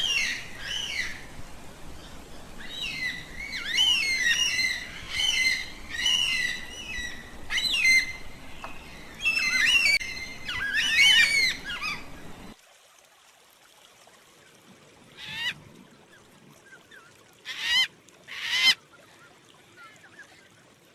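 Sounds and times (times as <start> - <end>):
background hiss: 0.0 - 12.6.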